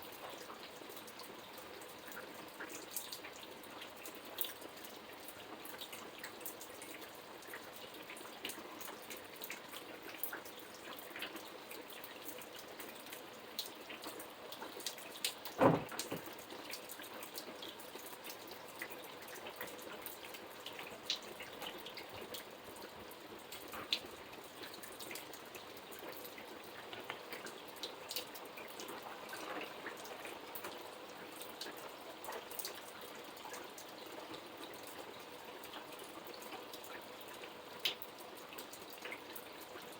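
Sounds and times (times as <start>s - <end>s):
rain drops hitting a surface: 0.0s - 39.9s
loud thump: 15.6s - 16.3s.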